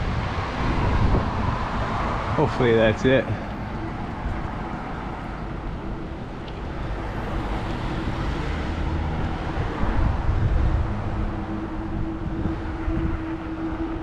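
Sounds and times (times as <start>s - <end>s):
road noise: 0.0s - 14.0s
wind on microphone: 0.0s - 14.0s
low rumble: 3.2s - 14.0s.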